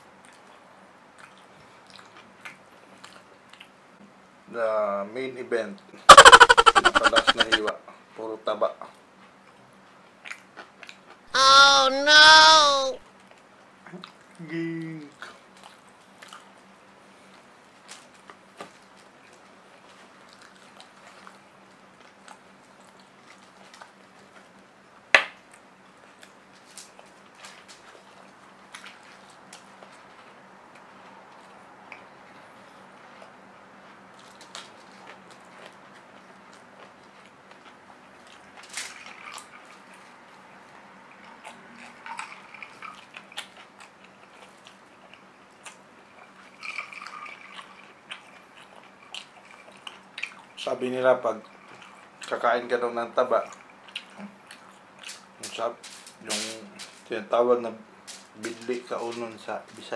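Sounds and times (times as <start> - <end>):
chewing and lip smacks: 0.2 - 3.8, 9.2 - 11.2, 13.2 - 14.4, 15.1 - 24.6, 25.4 - 50.7, 51.4 - 52.4, 53.4 - 55.4.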